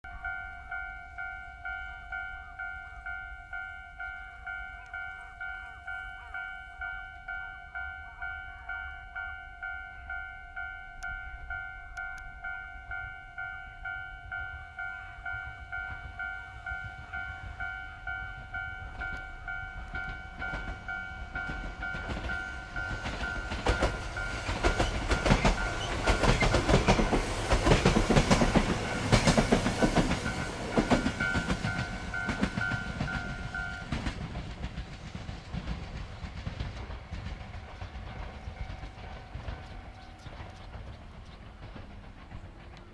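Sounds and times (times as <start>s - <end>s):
level-crossing alarm ringing: 0.1s - 34.1s
train wheels clattering over rail joints: 19.0s - 42.9s.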